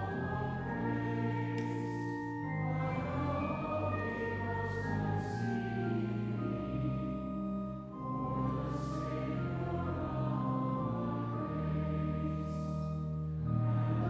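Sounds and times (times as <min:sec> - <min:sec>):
choir singing held chords: 0:00.0 - 0:14.0.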